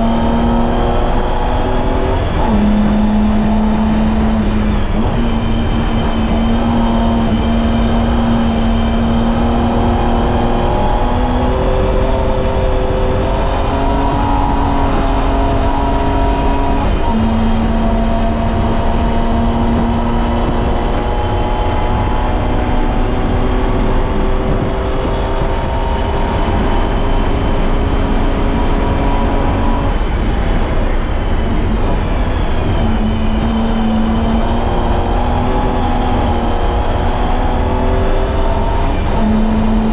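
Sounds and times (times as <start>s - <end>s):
car engine running hard: 0.0s - 39.9s
tyre and road noise: 0.0s - 39.9s.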